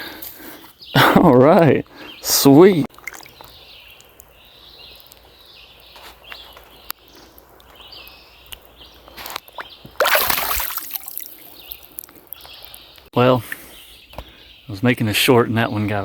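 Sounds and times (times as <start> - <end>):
river water sloshing and splashing: 2.9 - 3.6, 9.5 - 12.1
loud water splash: 10.0 - 11.6.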